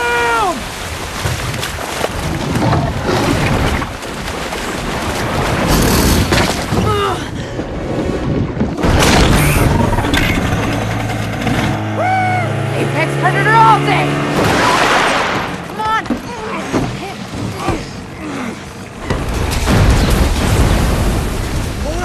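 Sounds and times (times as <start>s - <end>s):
rushing floodwater: 0.0s - 11.0s, 11.9s - 22.0s
heavy booms and crashes: 19.0s - 22.0s.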